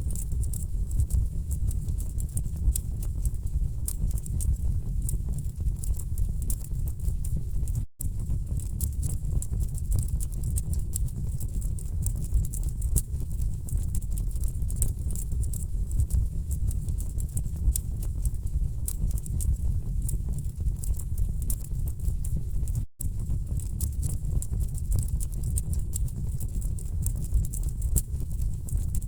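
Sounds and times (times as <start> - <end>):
low rumble of burning logs: 0.0 - 29.0.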